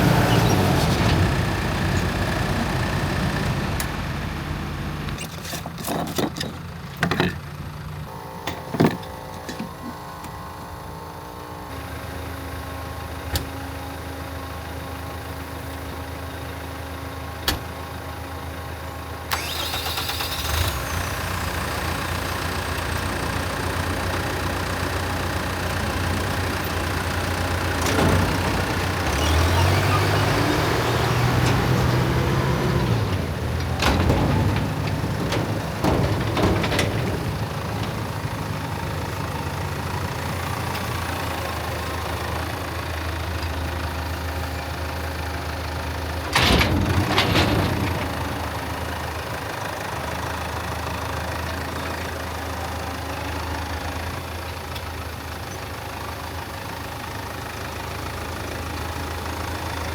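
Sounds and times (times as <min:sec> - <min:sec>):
engine running: 0:00.0 - 0:59.9
loud metal clanks: 0:26.4 - 0:40.6.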